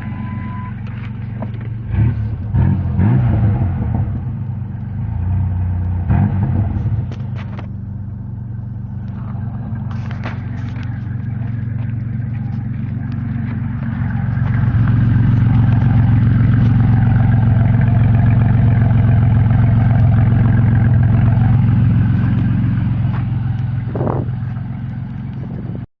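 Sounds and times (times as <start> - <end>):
truck exhaust droning: 0.0 - 25.9.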